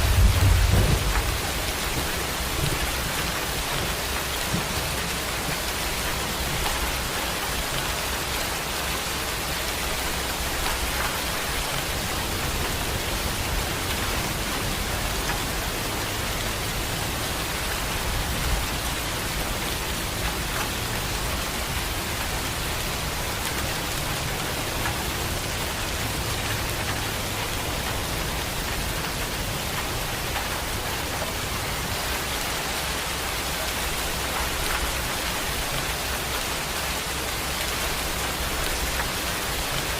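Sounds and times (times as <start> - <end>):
low rumble: 0.0 - 2.7
heavy rain falling: 0.0 - 39.9.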